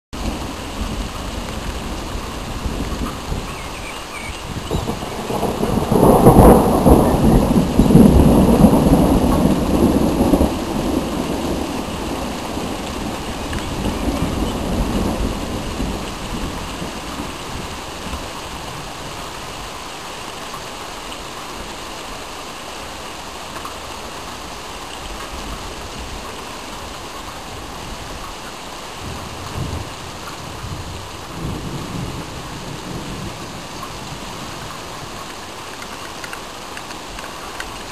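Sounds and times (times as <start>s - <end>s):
thunder rumbling: 0.2s - 19.3s, 28.9s - 36.4s
steady rain hissing: 0.2s - 37.9s.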